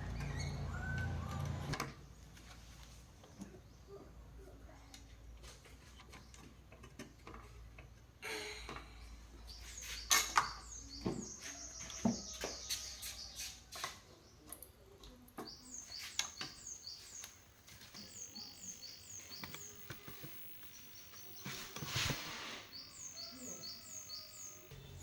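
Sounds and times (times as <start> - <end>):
small bird chirping: 9.4 - 13.6, 14.2 - 25.0.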